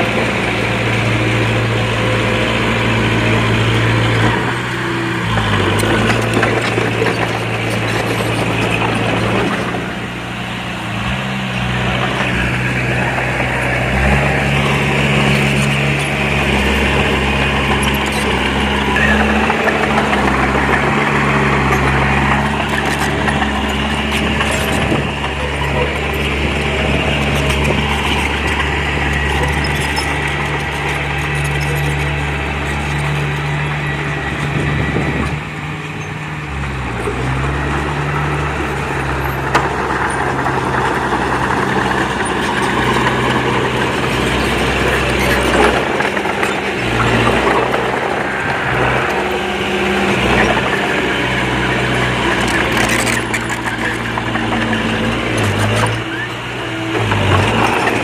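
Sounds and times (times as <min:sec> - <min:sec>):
bulldozer diesel engine running: 0:00.0 - 0:58.0
clatter of machinery: 0:00.0 - 0:58.0.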